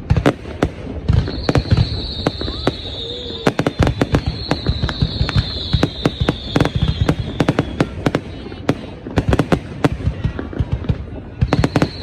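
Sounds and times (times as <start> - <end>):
fireworks bangs and crackles: 0.0 - 12.0
high-pitched falling whistle: 1.2 - 7.4.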